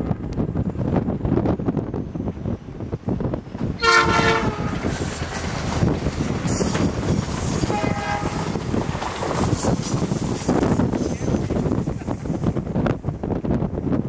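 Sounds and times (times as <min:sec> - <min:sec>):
train wheels rumbling: 0:00.0 - 0:14.0
locomotive horn blast: 0:03.8 - 0:04.9, 0:07.6 - 0:08.6.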